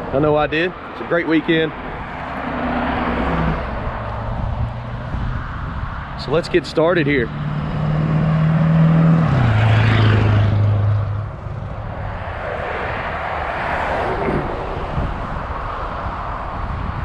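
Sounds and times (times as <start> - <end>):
vehicle engine droning: 0.0 - 17.0
steady rushing noise: 9.6 - 17.0.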